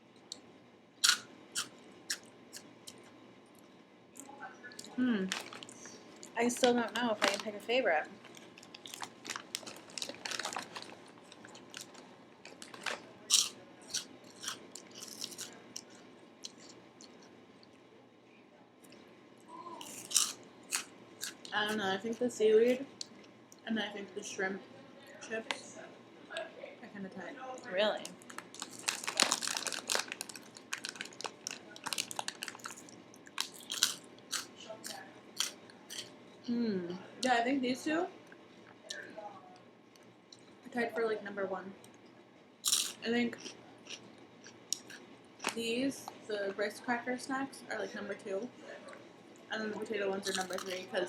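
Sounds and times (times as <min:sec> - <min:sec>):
chips being chewed: 0:01.0 - 0:02.3, 0:08.3 - 0:17.3, 0:19.8 - 0:21.8, 0:28.2 - 0:36.1, 0:42.6 - 0:45.6, 0:50.2 - 0:50.9
crunching crisps: 0:01.0 - 0:02.3, 0:05.3 - 0:07.6, 0:08.3 - 0:17.2, 0:19.8 - 0:21.6, 0:28.1 - 0:36.1, 0:42.6 - 0:44.0, 0:44.7 - 0:45.6, 0:50.2 - 0:50.8
crisp packet crinkling: 0:05.3 - 0:05.8, 0:06.5 - 0:15.5, 0:19.8 - 0:21.4, 0:28.1 - 0:34.5, 0:50.3 - 0:50.8.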